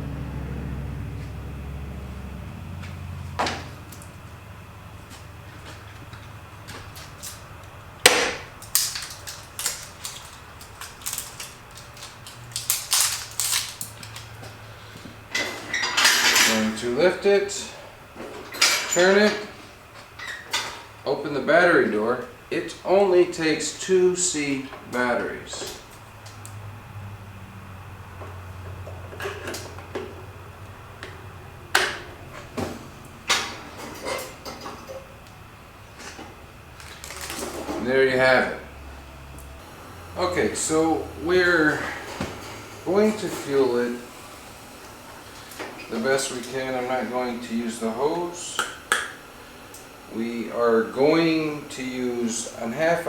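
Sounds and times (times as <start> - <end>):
heater parts knocking and rattling: 0.5 - 16.8, 24.6 - 26.8, 27.9 - 38.5, 39.4 - 44.3.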